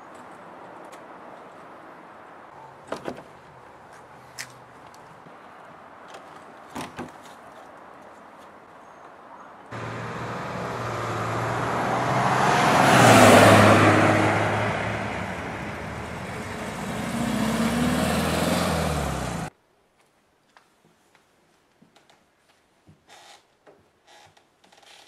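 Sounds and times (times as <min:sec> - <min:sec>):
vehicle engine passing and revving: 0:09.7 - 0:19.5.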